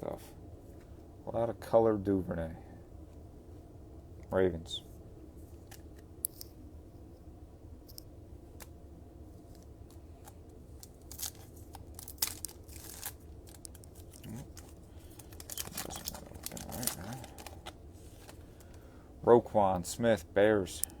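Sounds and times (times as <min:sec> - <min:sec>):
cards clicking and rustling: 0:05.5 - 0:06.6, 0:07.9 - 0:08.8, 0:09.4 - 0:18.9
wrapper tearing and crinkling: 0:10.8 - 0:18.4.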